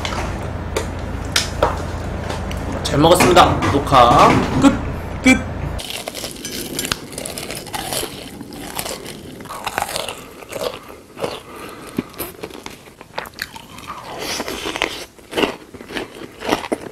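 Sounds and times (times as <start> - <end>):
crunchy biting and chewing: 5.8 - 16.9.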